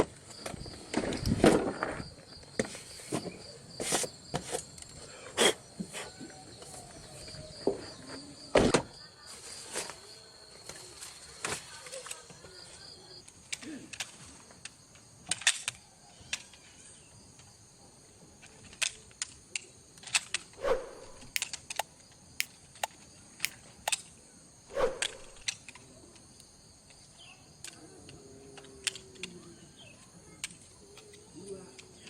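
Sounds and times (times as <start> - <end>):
night insects chirring: 0.0 - 13.3, 19.7 - 28.4.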